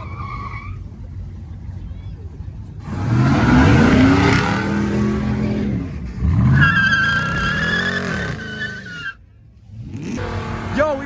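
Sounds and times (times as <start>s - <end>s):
car engine revving: 2.8s - 8.9s, 9.6s - 11.0s
tyres squealing: 6.5s - 9.2s.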